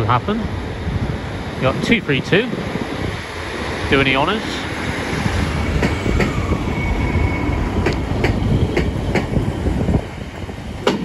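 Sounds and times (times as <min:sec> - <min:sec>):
train rumbling past: 0:00.0 - 0:11.0
wheels clicking over rail joints: 0:04.8 - 0:06.4, 0:07.8 - 0:11.0.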